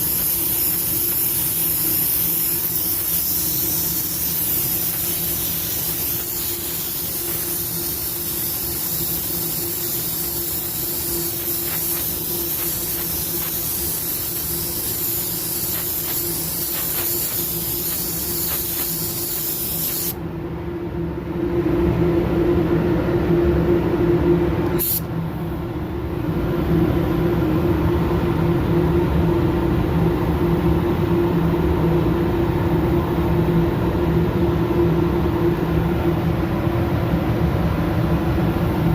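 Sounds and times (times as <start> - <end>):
air spray gun hissing: 0.0 - 20.2, 24.8 - 25.1
low machine hum: 0.0 - 38.9.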